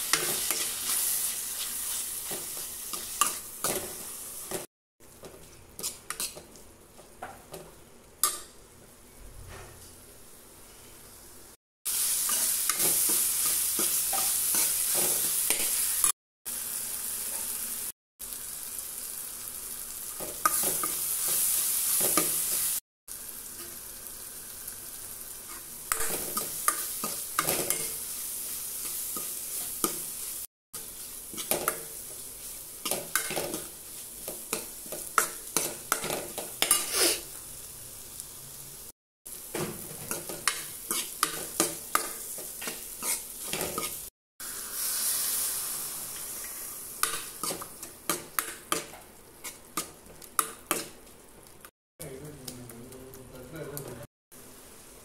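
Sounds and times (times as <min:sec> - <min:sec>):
onions and tomatoes sizzling: 0:00.0 - 0:09.2, 0:09.8 - 0:55.0
steel ladle scraping pan: 0:40.0 - 0:44.0.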